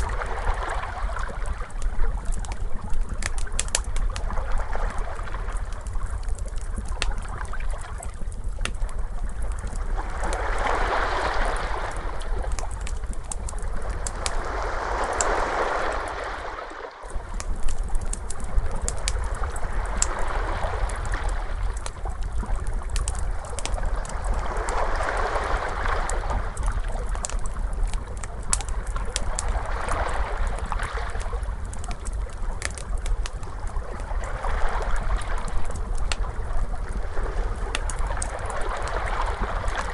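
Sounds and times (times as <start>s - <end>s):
wood fire crackling: 0.0s - 16.2s, 17.0s - 39.9s
steady low rumble: 0.0s - 39.9s
ocean waves washing in: 9.8s - 17.7s, 18.3s - 21.8s, 23.2s - 27.0s.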